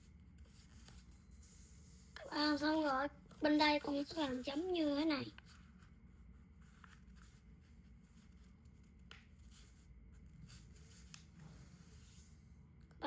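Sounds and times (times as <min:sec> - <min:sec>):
paper being folded and creased: 0:03.8 - 0:12.3.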